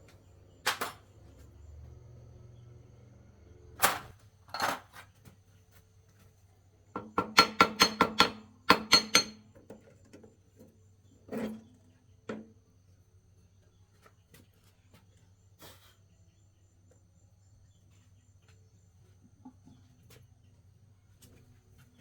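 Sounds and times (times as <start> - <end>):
hammer striking metal: 7.3 - 9.4.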